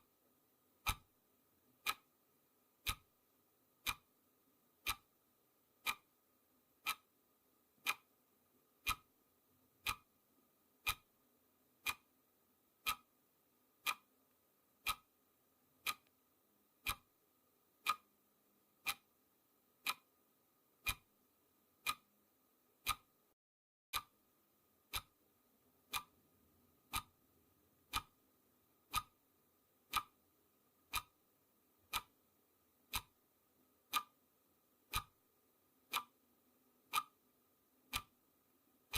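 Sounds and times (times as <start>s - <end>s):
clock ticking: 0.8s - 1.2s, 1.8s - 2.2s, 2.8s - 3.2s, 3.8s - 6.2s, 6.8s - 9.2s, 9.8s - 10.2s, 10.8s - 11.2s, 11.8s - 13.2s, 13.8s - 15.2s, 15.8s - 16.2s, 16.8s - 17.2s, 17.8s - 19.2s, 19.8s - 20.2s, 20.8s - 21.2s, 21.8s - 22.2s, 22.8s - 23.3s, 24.0s - 25.2s, 25.8s - 28.2s, 28.8s - 33.2s, 33.8s - 38.9s.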